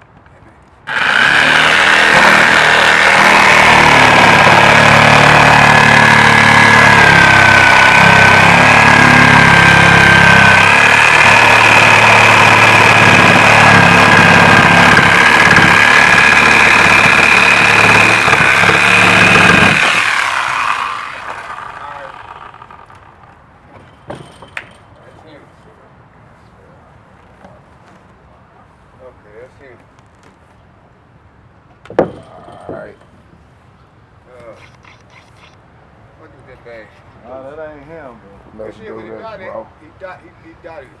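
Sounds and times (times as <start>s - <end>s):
motor whining and rumbling: 0.9s - 23.3s.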